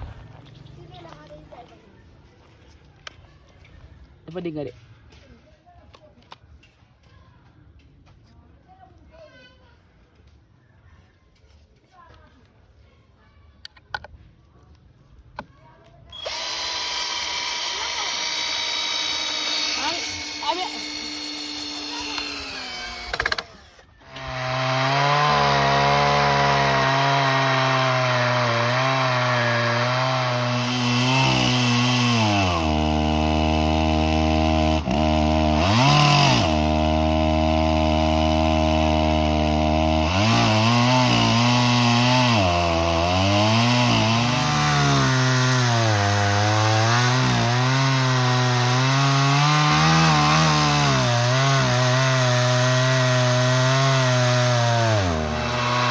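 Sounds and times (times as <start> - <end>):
chainsaw cutting through log: 16.1 - 55.9.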